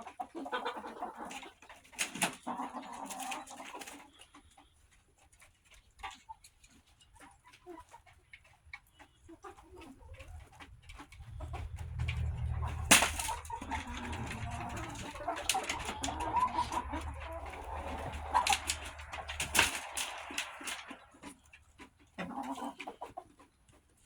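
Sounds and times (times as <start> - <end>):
chickens clucking: 0.0 - 24.0
low rumble: 10.2 - 22.1.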